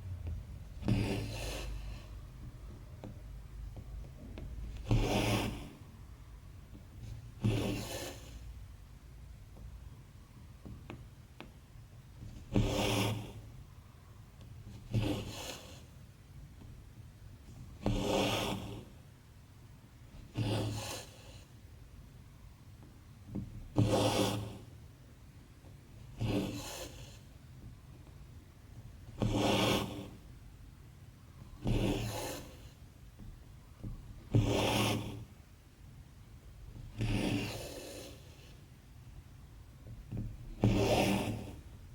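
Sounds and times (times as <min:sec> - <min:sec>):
thread rasping through fabric: 0:00.2 - 0:06.0, 0:10.4 - 0:13.6, 0:16.6 - 0:19.0, 0:23.2 - 0:24.8, 0:25.6 - 0:30.4, 0:31.4 - 0:35.6, 0:36.3 - 0:38.8, 0:39.7 - 0:41.9.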